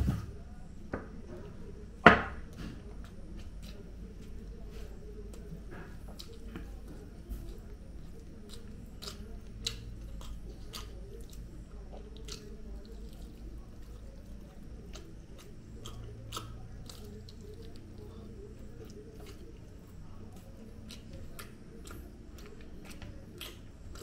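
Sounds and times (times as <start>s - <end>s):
steady low hum: 0.0s - 24.0s
mouth clicks and smacks of eating: 5.3s - 24.0s.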